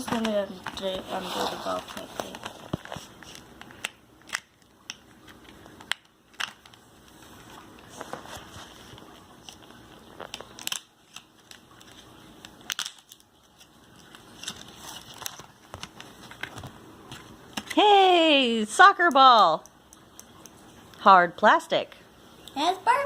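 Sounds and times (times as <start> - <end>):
packaging crinkling: 7.8 - 17.8
plastic packaging clicks and snips: 10.2 - 16.7.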